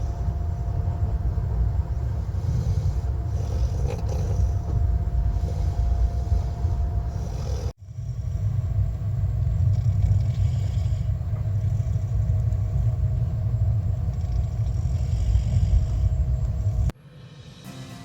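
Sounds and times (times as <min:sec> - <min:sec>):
faint steady hum: 0:00.0 - 0:17.4
train rumble inside carriage: 0:00.0 - 0:18.0.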